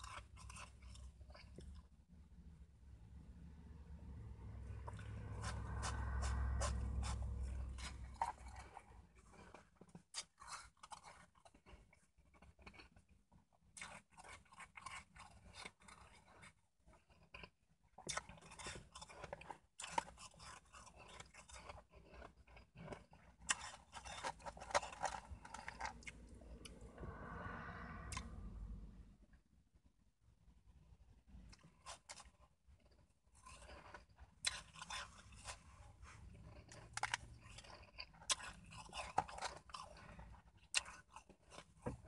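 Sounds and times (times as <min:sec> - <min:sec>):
chewing and crunching ice: 0:00.0 - 0:02.2, 0:04.6 - 0:26.9, 0:31.3 - 0:42.0.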